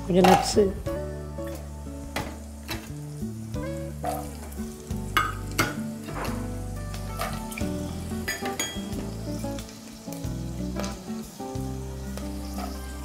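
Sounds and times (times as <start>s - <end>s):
spices sizzling in hot oil: 0.0s - 13.0s
spoon stirring and knocking pan: 0.2s - 0.6s, 4.0s - 4.5s, 5.1s - 7.4s, 8.3s - 9.0s.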